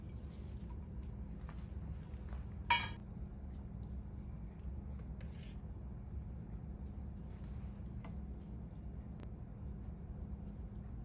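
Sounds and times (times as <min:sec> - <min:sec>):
steady low hum: 0:00.0 - 0:11.0
utensil clinking against kitchenware: 0:02.7 - 0:03.0.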